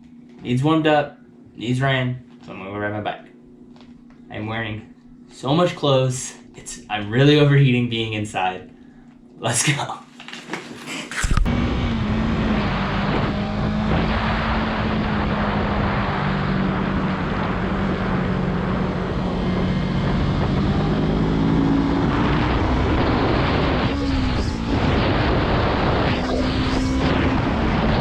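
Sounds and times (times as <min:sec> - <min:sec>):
steady rushing noise: 0:11.3 - 0:28.0
motorcycle engine running: 0:11.5 - 0:28.0.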